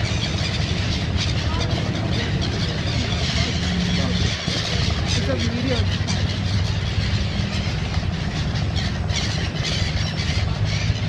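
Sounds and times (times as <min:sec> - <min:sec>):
birds calling: 0:00.0 - 0:11.0
low engine hum: 0:00.0 - 0:11.0.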